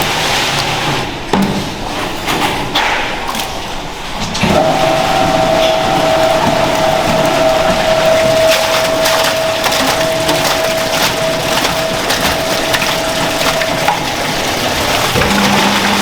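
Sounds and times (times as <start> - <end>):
machine whine: 4.4 - 16.0.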